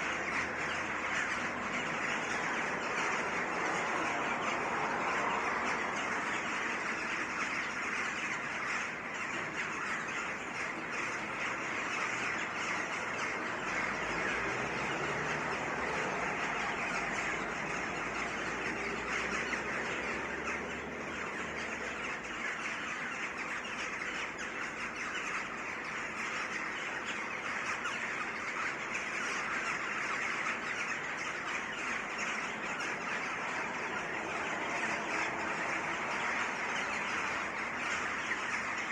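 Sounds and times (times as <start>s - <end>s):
birds chattering and chirping: 0.0s - 38.9s.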